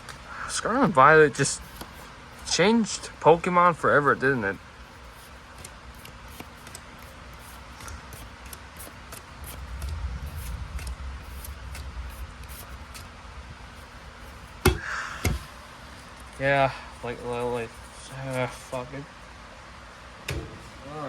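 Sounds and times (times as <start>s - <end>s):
trading cards rustling and clicking: 1.1s - 13.1s
low rumble: 9.6s - 14.3s.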